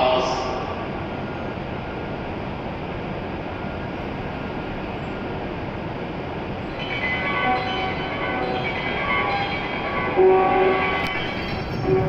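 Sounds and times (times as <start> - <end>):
station platform hum: 0.0 - 12.0
chime-like departure tones: 6.7 - 12.0.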